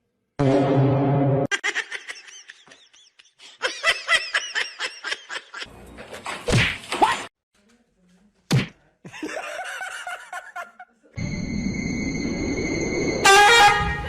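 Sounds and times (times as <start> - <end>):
person laughing: 1.5 - 5.7, 9.1 - 10.8.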